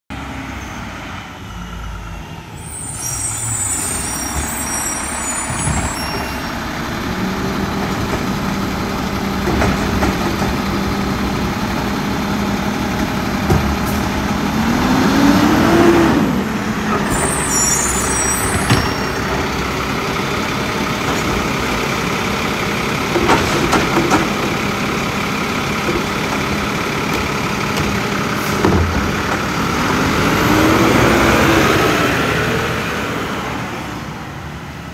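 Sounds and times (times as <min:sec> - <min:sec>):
air brake squeals: 0:02.2 - 0:06.6, 0:16.9 - 0:19.7
garbage truck engine running: 0:03.4 - 0:33.1.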